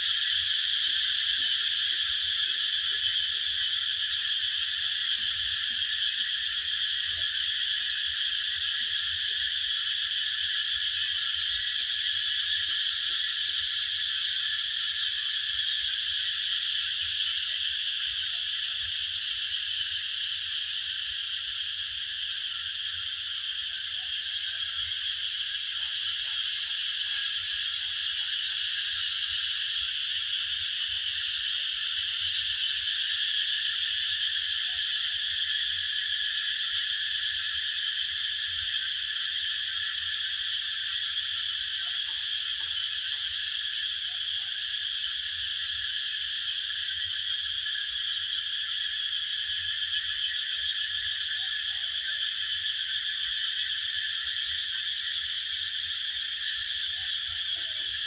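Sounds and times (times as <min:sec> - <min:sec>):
chorus of calling animals: 0:54.2 - 0:58.0.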